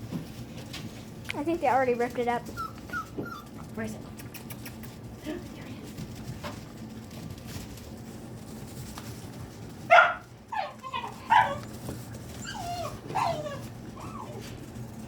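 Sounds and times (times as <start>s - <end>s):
puppies whining and yipping: 2.4s - 3.7s, 10.0s - 14.8s
puppies barking: 9.8s - 14.8s.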